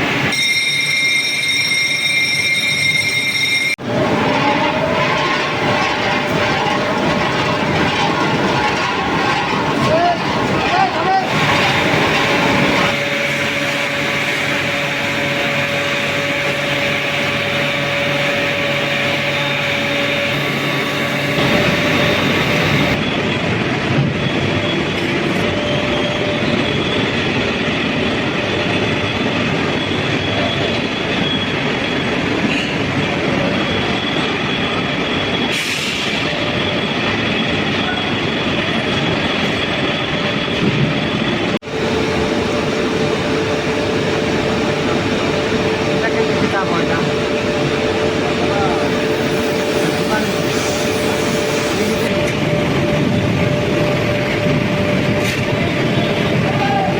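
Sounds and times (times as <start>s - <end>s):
machinery rumble: 3.8s - 28.9s, 40.0s - 56.9s
steady hum tone: 41.6s - 55.0s.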